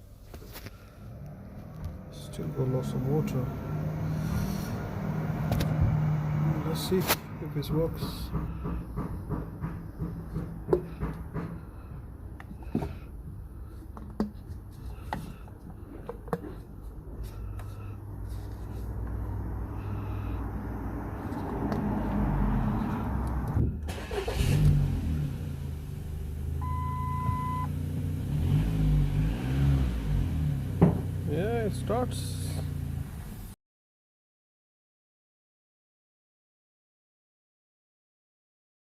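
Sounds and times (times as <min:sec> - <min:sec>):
engine clicks and knocks: 0:07.6 - 0:13.1.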